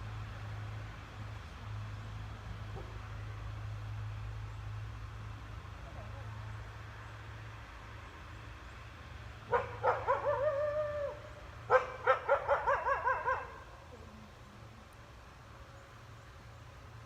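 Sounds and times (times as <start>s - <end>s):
wolf howling and yipping: 9.5s - 13.6s.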